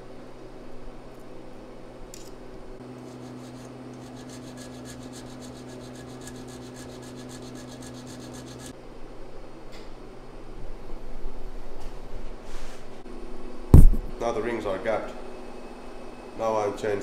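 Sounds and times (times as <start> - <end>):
ring filer grinding and rasping: 3.0 - 8.7.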